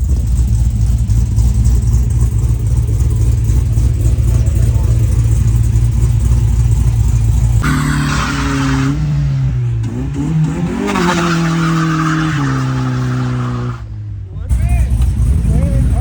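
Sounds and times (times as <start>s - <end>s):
car engine at high revs: 0.0s - 16.0s
tyres screeching: 7.2s - 9.5s, 10.1s - 13.8s.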